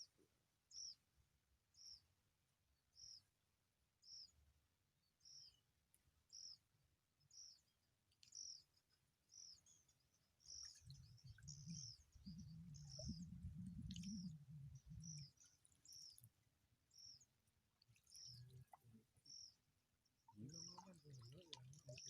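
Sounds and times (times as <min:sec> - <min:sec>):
bird chirps: 0:07.3 - 0:16.3, 0:16.9 - 0:17.3, 0:17.9 - 0:22.0
low rumble: 0:11.4 - 0:15.3.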